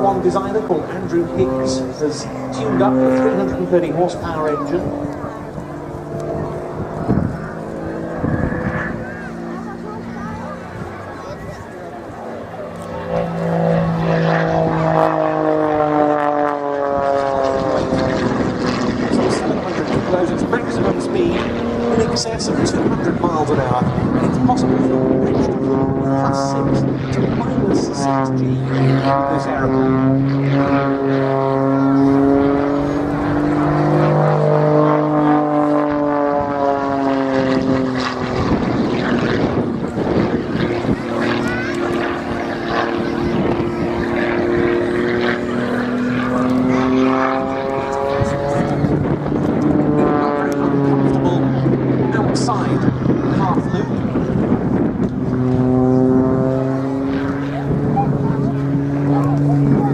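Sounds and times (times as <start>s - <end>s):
propeller plane engine passing: 0.0s - 59.9s.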